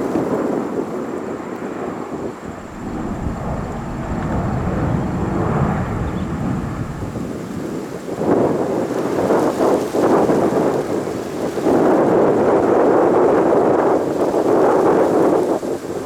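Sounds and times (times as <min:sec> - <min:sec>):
jet engines roaring at takeoff: 0:00.8 - 0:09.0.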